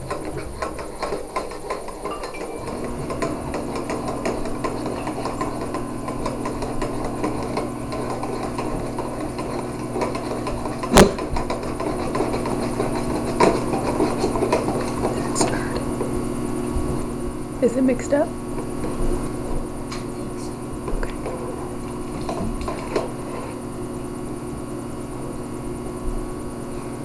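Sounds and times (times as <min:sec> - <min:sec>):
steady low hum: 0:00.0 - 0:27.0
sharp knock: 0:10.9 - 0:11.3
spoon stirring in container: 0:11.4 - 0:15.4.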